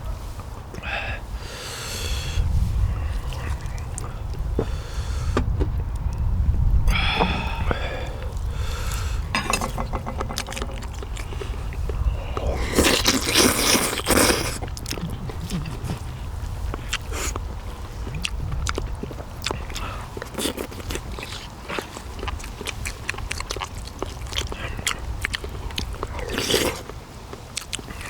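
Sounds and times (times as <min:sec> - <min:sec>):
steady low rumble: 0:02.2 - 0:13.4
biting and chewing: 0:02.8 - 0:06.3, 0:06.9 - 0:28.0
utensils clinking against dish: 0:09.3 - 0:11.6.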